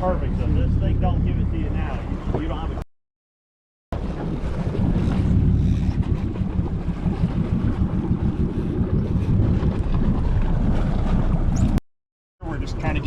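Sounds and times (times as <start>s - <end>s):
wind buffeting microphone: 4.0s - 11.8s.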